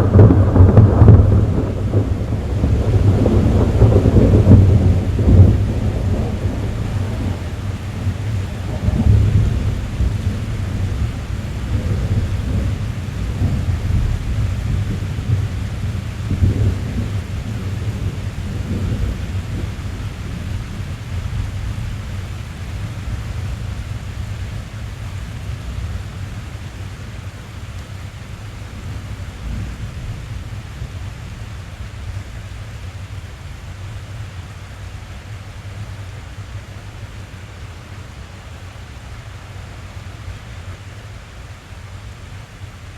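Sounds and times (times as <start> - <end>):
low rumble of thunder: 0.0 - 34.7
rain pattering on a car roof: 0.0 - 42.9.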